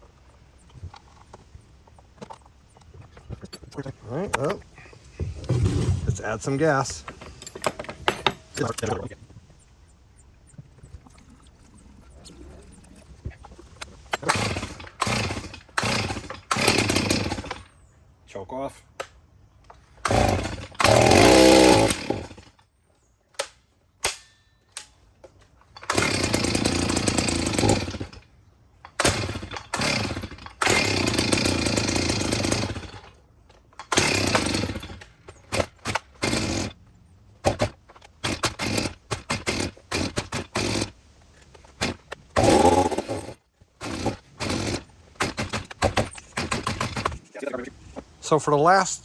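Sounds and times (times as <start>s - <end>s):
chainsaw starting and dying: 5.4s - 7.0s, 14.1s - 17.7s, 20.0s - 22.6s, 25.8s - 28.3s, 28.9s - 33.2s, 33.8s - 36.8s, 37.4s - 41.0s, 41.7s - 47.2s
pull cord pulls: 33.8s - 36.8s, 37.4s - 47.2s.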